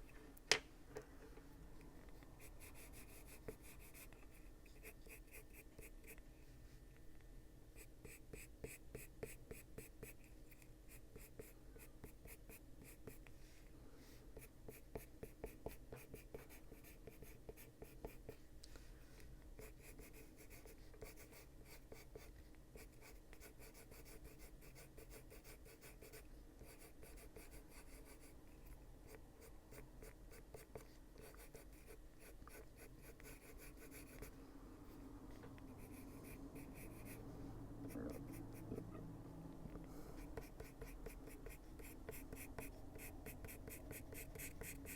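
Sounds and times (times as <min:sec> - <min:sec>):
coloured pencil scratching on paper: 0:02.4 - 0:06.2, 0:07.8 - 0:13.3, 0:14.3 - 0:18.4, 0:19.6 - 0:28.4, 0:29.0 - 0:34.3, 0:35.7 - 0:39.0, 0:40.1 - 0:44.9.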